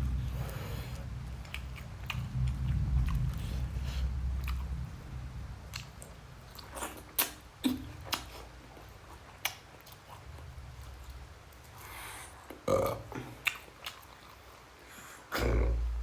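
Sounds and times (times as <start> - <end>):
person chewing food: 0.0 - 14.8
wet lip smacks and clicks: 5.7 - 8.4, 9.4 - 10.2, 13.4 - 14.2.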